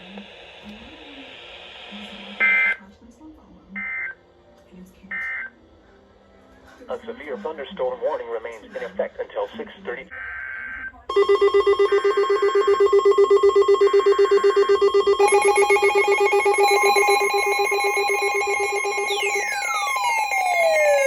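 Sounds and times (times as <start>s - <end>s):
fast-pulsing electronic alert tone: 11.1s - 21.0s.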